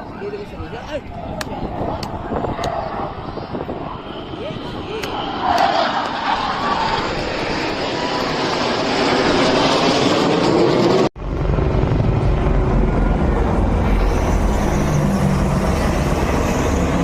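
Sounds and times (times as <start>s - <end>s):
jet aircraft flying overhead: 0.0s - 17.0s
deep low rumble: 11.2s - 17.0s.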